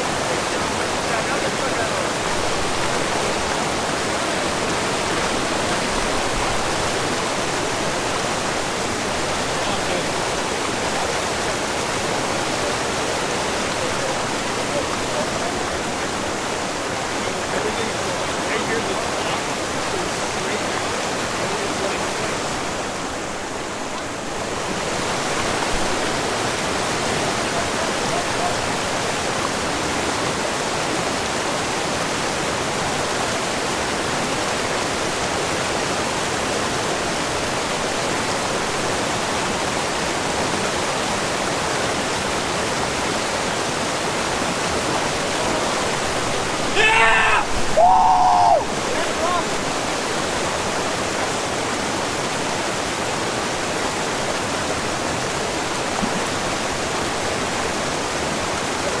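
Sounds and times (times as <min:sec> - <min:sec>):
waterfall rushing: 0:00.0 - 0:59.0
person shouting: 0:46.7 - 0:49.5.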